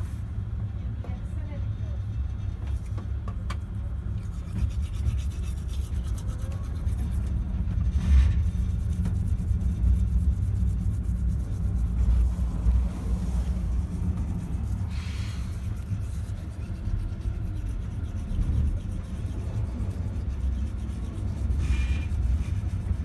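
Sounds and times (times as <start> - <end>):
train rumble inside compartment: 0.0 - 23.0.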